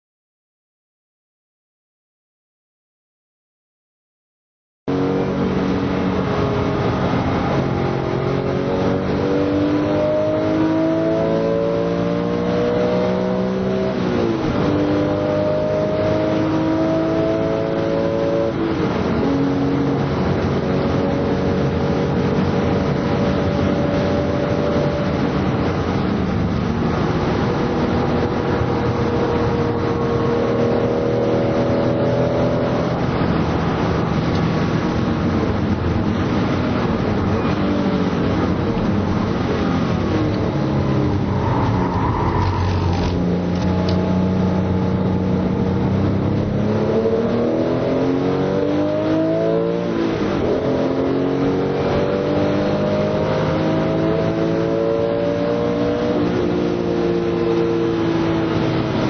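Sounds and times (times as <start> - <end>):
car engine accelerating hard: 4.9 - 59.0.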